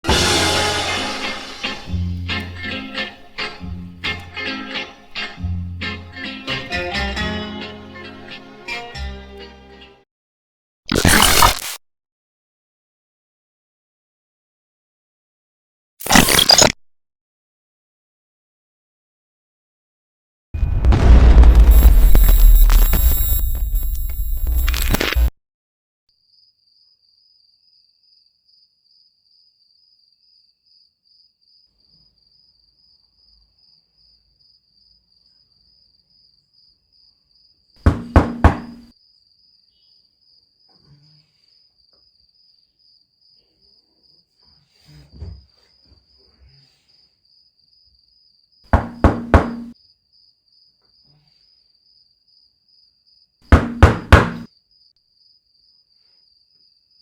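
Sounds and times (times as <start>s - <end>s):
crickets chirping: 21.7s - 25.3s, 26.3s - 37.8s, 38.9s - 40.8s, 41.4s - 44.3s, 46.9s - 48.6s, 49.8s - 53.4s, 54.5s - 57.0s.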